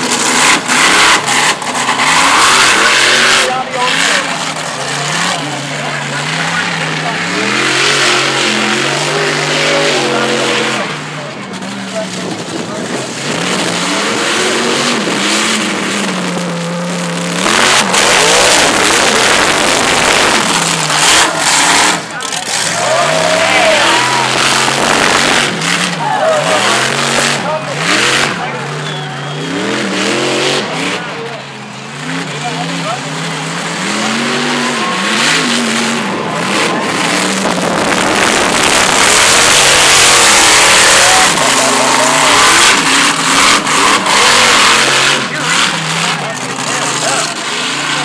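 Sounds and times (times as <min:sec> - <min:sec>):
truck engine revving hard: 0:00.0 - 0:48.0
loud rushing noise: 0:12.3 - 0:31.4, 0:33.2 - 0:48.0.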